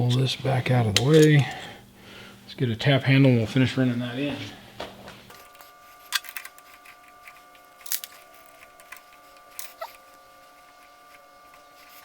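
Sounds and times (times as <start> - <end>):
faint steady hum: 0.0 - 12.0
metal tools clicking and clinking: 5.3 - 10.1.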